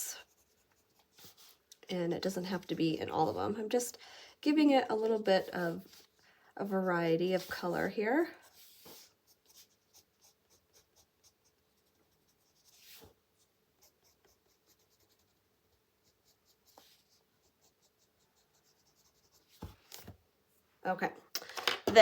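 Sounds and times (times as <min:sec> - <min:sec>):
pencil scratching on paper: 0:00.2 - 0:01.6, 0:06.9 - 0:20.0.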